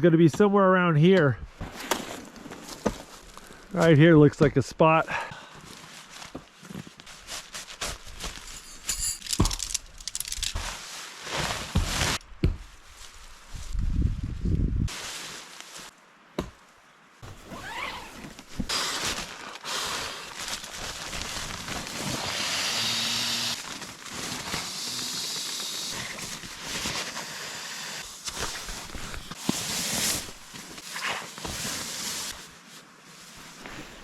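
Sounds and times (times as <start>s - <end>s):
tent fabric crinkling and rustling: 5.5s - 8.8s, 9.6s - 16.0s, 17.2s - 34.0s.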